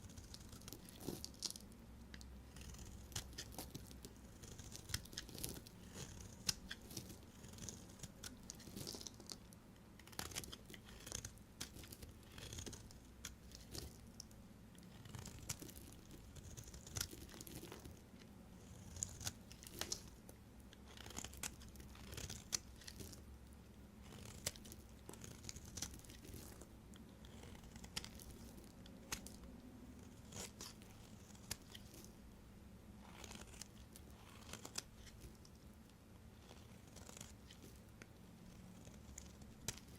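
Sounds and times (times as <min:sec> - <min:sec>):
knife cutting soap: 0:00.1 - 0:09.4, 0:10.0 - 0:14.2, 0:20.8 - 0:23.2, 0:24.0 - 0:32.1.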